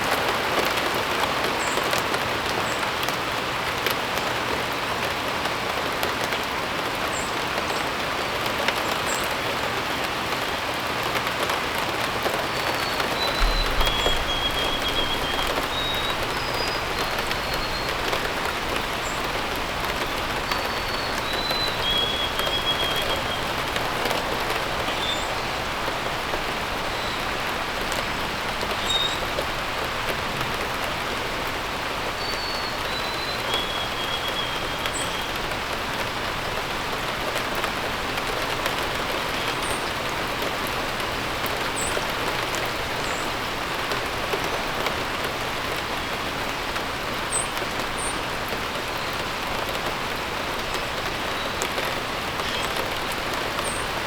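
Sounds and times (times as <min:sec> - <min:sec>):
steady rain falling: 0:00.0 - 0:54.0
birds whistling phrases: 0:12.6 - 0:19.3, 0:20.1 - 0:23.6
high bird chirps: 0:12.8 - 0:19.3.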